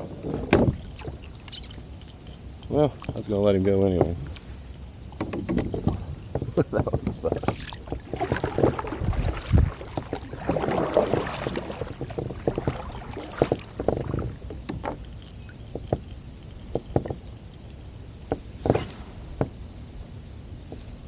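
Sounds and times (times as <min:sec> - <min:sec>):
knocks and clunks on a kayak: 0:00.0 - 0:01.3, 0:03.0 - 0:04.4, 0:05.1 - 0:17.3, 0:18.2 - 0:19.6
water sloshing against hull: 0:00.0 - 0:19.6.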